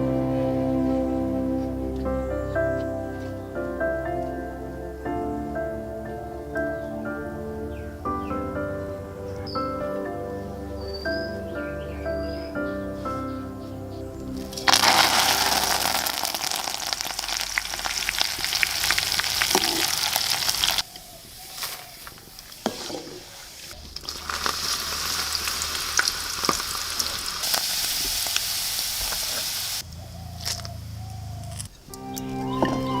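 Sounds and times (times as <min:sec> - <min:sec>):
food frying and sizzling: 0:14.4 - 0:20.9, 0:22.7 - 0:29.8.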